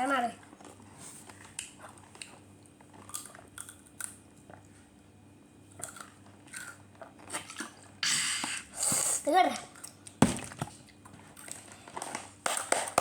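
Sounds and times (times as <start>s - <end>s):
chewing crunchy snack: 0.5s - 4.9s, 5.7s - 8.0s.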